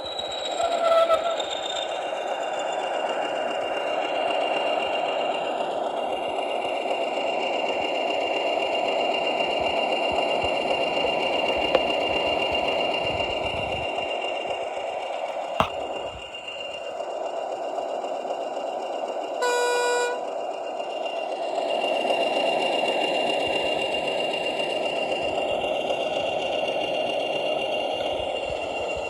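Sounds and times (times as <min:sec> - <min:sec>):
diesel engine running: 0:00.0 - 0:29.0
high whine: 0:19.4 - 0:20.4.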